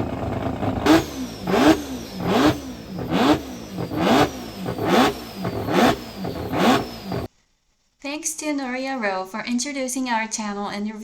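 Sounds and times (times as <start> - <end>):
rotary engine throttle blips: 0.0 - 7.3.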